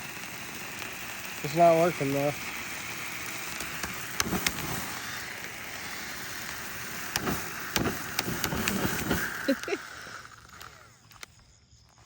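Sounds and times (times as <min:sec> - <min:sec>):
bubble gun whirring hiss: 0:00.0 - 0:11.7.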